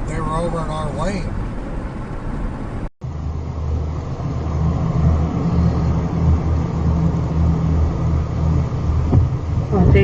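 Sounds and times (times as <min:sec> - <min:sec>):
road noise: 0:00.0 - 0:10.0
vehicle engine rumble: 0:00.0 - 0:10.0.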